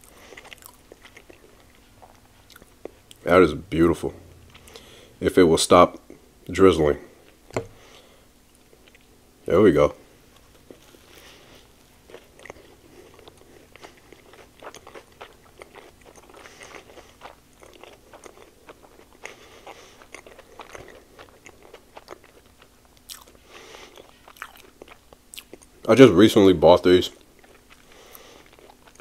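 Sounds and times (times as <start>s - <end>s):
person biting and chewing: 0.0s - 3.2s, 10.6s - 25.8s.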